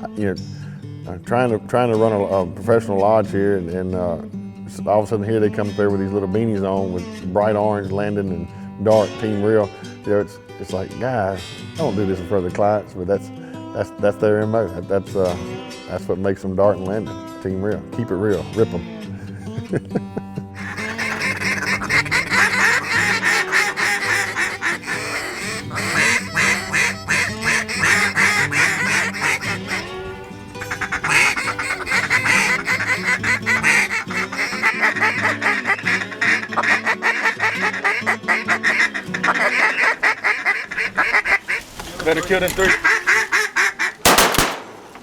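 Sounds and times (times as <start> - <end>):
background music: 0.0 - 40.4
ducks quacking: 20.4 - 44.6.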